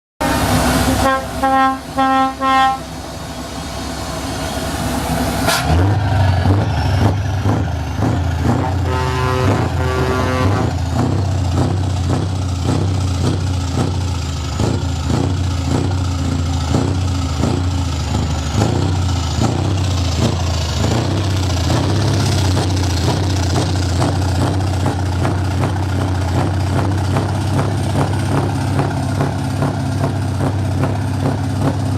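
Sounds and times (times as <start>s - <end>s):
diesel truck engine idling: 0.2s - 31.9s.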